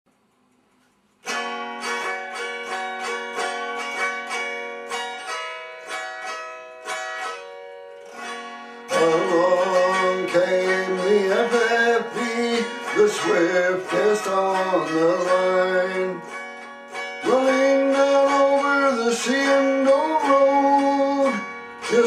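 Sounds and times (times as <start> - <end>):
plucked string folk melody: 1.2 - 22.0
man singing: 8.9 - 16.5, 17.2 - 22.0.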